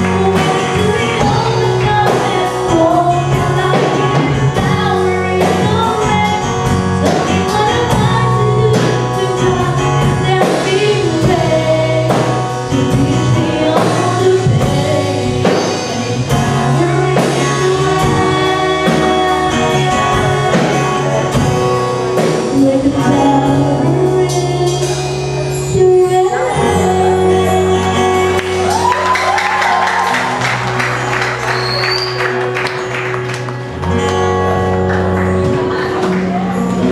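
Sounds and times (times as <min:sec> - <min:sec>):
person singing: 0:00.0 - 0:30.8
instrumental accompaniment with bass: 0:00.0 - 0:36.9.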